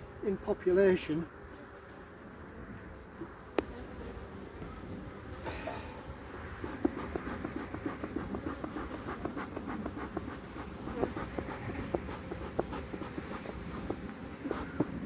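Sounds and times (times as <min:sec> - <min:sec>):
wooden hive frames scraping: 0:06.4 - 0:15.0.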